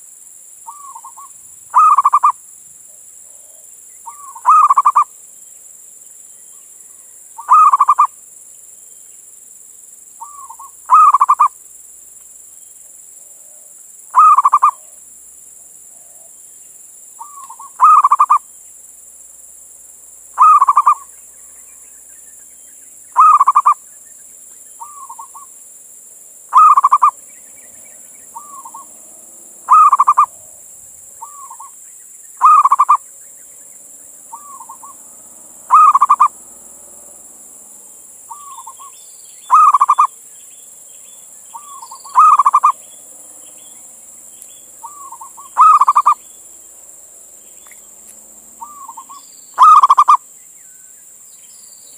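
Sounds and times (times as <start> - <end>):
dove cooing: 0.7 - 2.4, 3.2 - 5.1, 7.4 - 8.1, 10.2 - 11.5, 13.4 - 15.0, 17.2 - 18.4, 20.4 - 21.1, 23.2 - 23.8, 24.8 - 25.5, 26.5 - 31.8, 32.4 - 33.0, 34.3 - 37.1, 38.3 - 40.1, 41.5 - 42.9, 44.8 - 46.3, 48.6 - 50.2.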